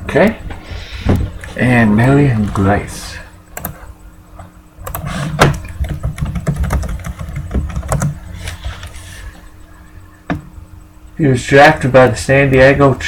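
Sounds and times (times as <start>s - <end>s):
typing on computer keyboard: 4.8s - 5.1s, 5.8s - 8.2s.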